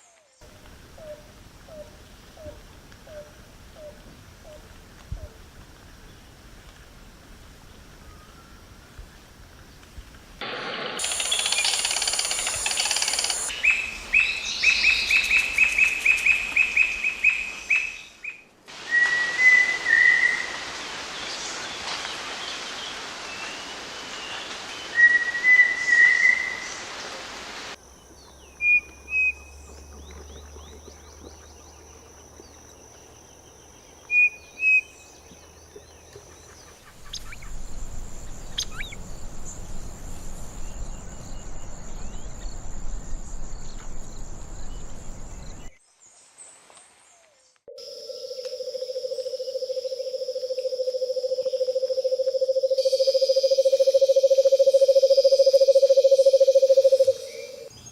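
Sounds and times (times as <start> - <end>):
birds calling: 34.1 - 45.7.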